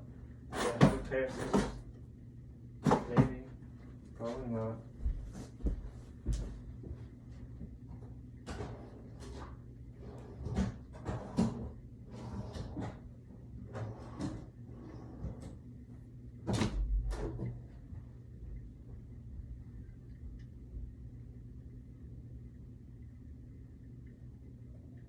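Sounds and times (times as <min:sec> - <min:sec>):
faint steady hum: 0:00.0 - 0:25.0
rummaging in cupboards and drawers: 0:00.5 - 0:01.9, 0:02.8 - 0:03.5, 0:08.0 - 0:15.6.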